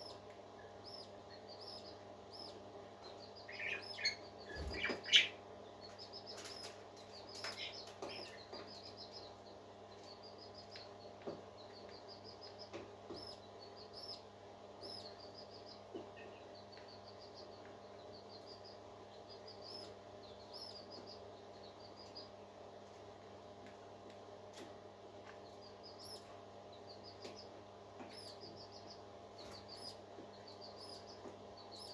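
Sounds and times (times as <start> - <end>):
steady low hum: 0.0 - 31.9
parakeets chirping: 3.2 - 5.4.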